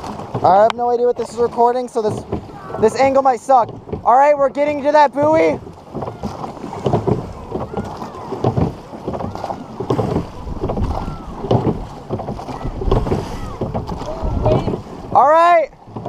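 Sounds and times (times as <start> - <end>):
oars clunking in oarlocks: 0.0 - 16.0
water splashing: 0.0 - 16.0
wind on microphone: 5.2 - 15.2.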